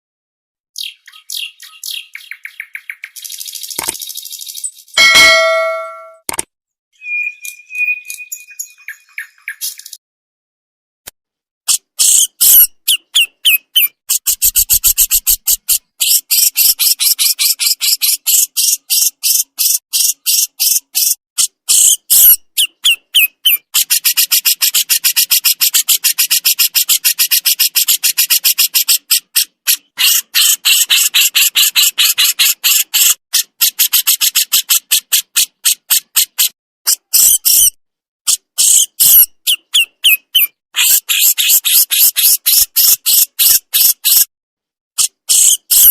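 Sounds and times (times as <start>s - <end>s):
songbird chattering: 0.8s - 3.7s.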